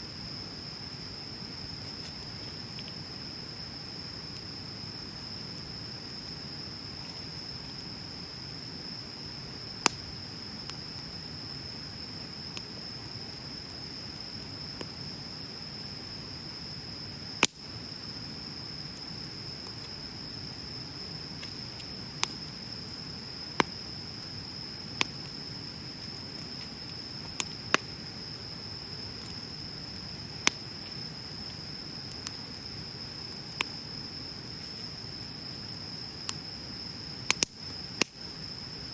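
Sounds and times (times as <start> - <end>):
bonfire crackling: 0.0 - 38.9
high-pitched insect trill: 0.0 - 38.9
sharp fire pops: 9.8 - 10.1, 17.4 - 17.7, 23.5 - 25.4, 26.3 - 28.0, 30.0 - 30.8, 37.2 - 38.3.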